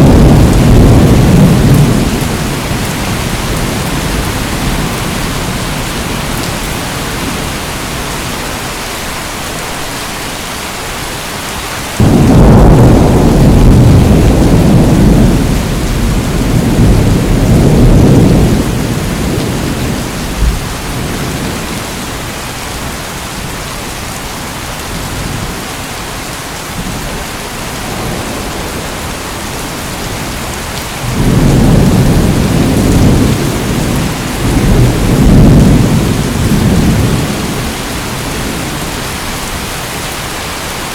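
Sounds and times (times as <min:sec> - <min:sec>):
rolling thunder: 0:00.0 - 0:07.6, 0:12.0 - 0:23.5, 0:26.8 - 0:39.5
heavy rain: 0:00.0 - 0:40.9.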